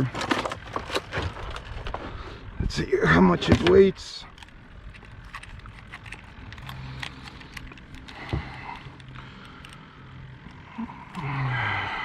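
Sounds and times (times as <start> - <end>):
scale and gear clicking: 4.3 - 9.8.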